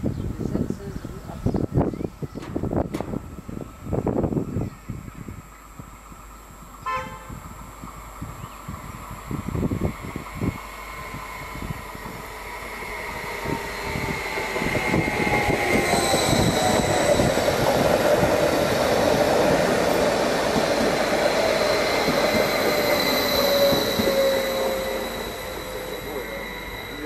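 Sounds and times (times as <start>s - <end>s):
passenger train passing: 0.0s - 27.0s.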